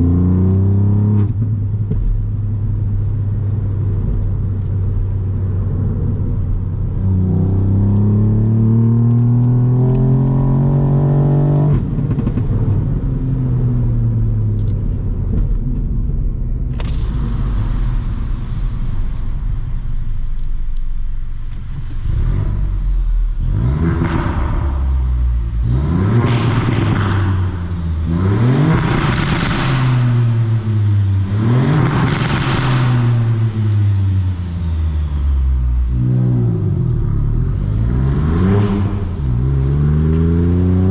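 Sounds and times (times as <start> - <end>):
car engine revving: 6.1 - 12.8, 16.8 - 40.9.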